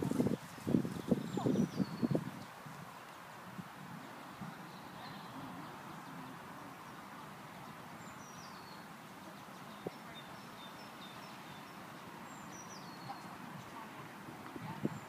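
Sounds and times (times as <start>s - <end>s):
background hiss: 0.0s - 15.0s
songbird singing and chirping: 0.0s - 15.0s.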